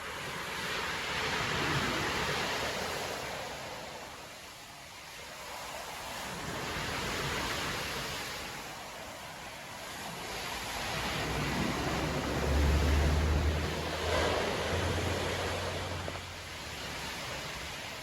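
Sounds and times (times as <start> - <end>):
surf breaking on beach: 0.0 - 18.0.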